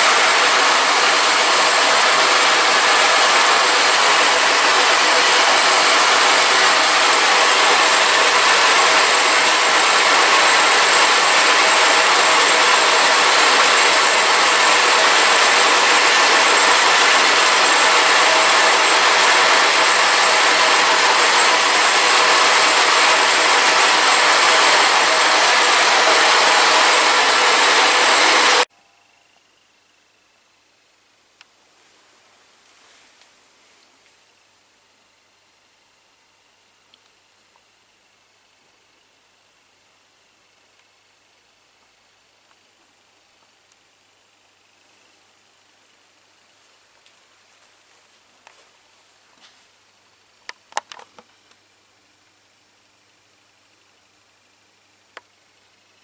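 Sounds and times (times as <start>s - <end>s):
workshop machine hissing: 0.0s - 28.7s
faint steady whines: 0.0s - 56.0s.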